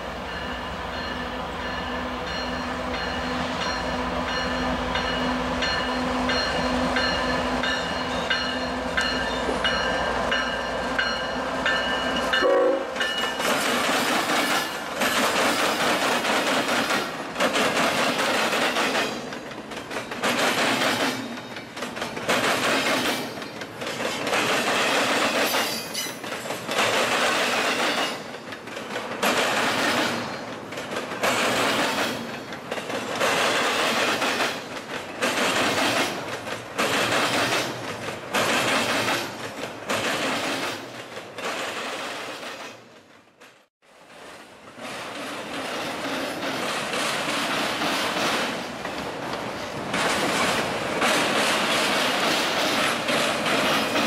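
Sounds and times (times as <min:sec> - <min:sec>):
train horn: 0:12.4 - 0:13.0.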